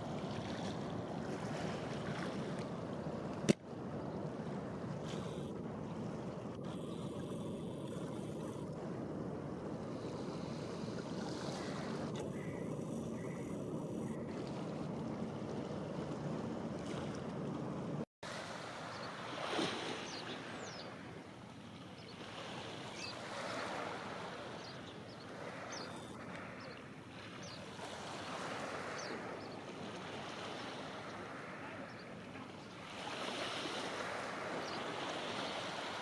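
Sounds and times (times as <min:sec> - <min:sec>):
low rumble with wind: 0:00.0 - 0:18.0
waves washing onto shore: 0:00.0 - 0:36.0.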